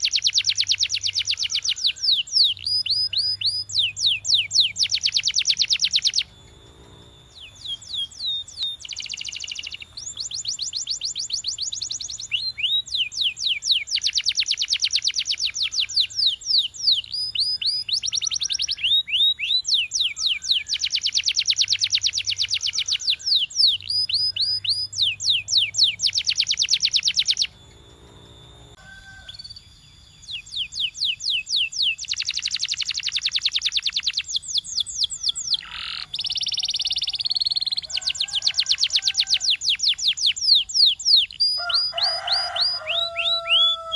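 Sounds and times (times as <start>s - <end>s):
canary singing: 0.0s - 43.9s.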